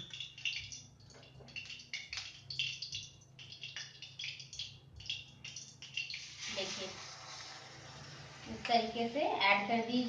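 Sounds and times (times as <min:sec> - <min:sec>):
carrots sizzling in hot fat: 0:05.9 - 0:10.0.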